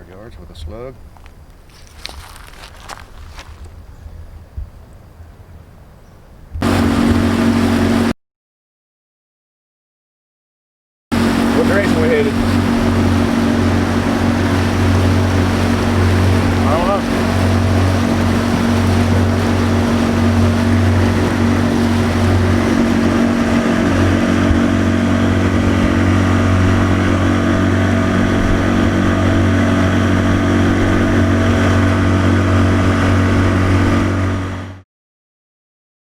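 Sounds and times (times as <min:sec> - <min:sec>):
vehicle engine droning: 0:06.6 - 0:08.1, 0:11.1 - 0:34.8.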